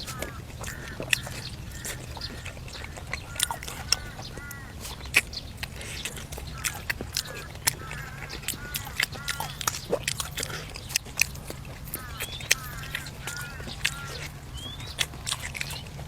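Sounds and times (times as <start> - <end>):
birds chirping: 0.0 - 16.0
person chewing food: 0.0 - 16.0.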